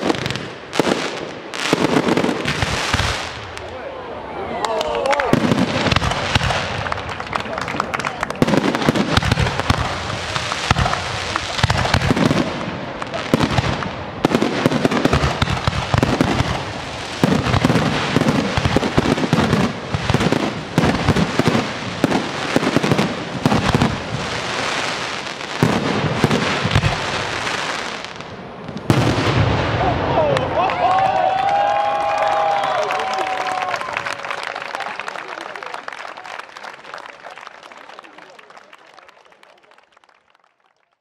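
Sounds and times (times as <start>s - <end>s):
fireworks crackling: 0.0s - 3.8s, 5.1s - 30.6s.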